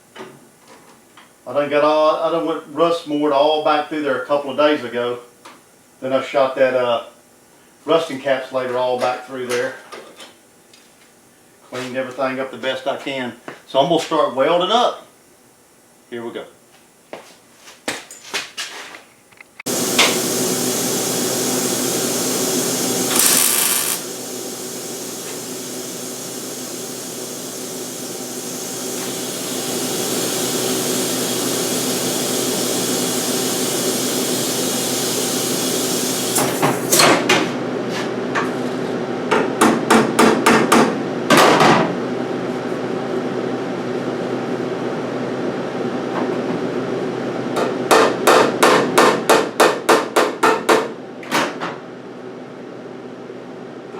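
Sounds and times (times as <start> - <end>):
faint electrical hum: 0.0 - 19.6
welder crackling hiss: 19.7 - 36.5.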